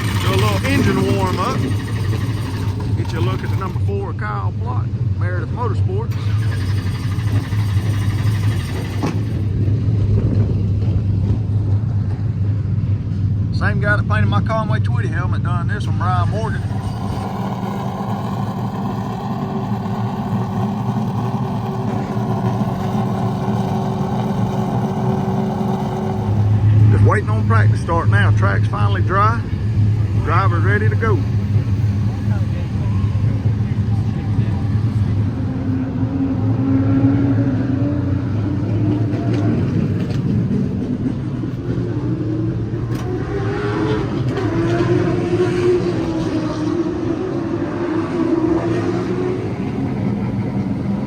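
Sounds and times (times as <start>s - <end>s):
car engine idling: 0.0s - 12.4s, 15.6s - 36.0s, 49.0s - 51.0s.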